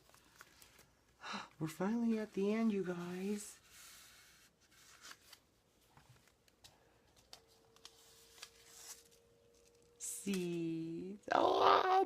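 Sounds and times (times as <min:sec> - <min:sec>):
paper rustling and clicking: 0:04.8 - 0:10.7.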